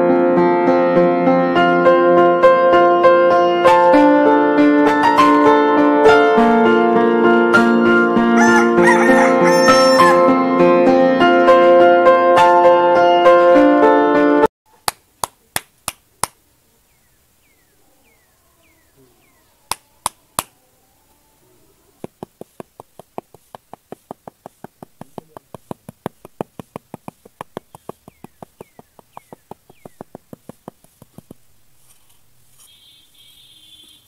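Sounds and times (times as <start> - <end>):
trowel slapping sand: 22.0 - 32.8.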